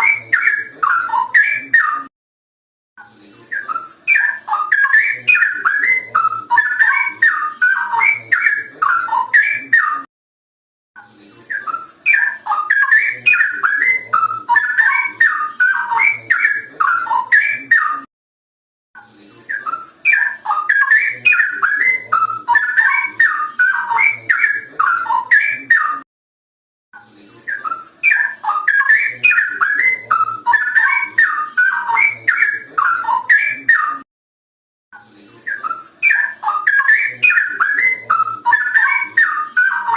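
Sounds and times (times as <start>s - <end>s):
bird singing whistled phrases: 3.5s - 10.1s, 11.5s - 18.1s, 19.5s - 26.0s, 27.5s - 34.0s, 35.5s - 39.9s.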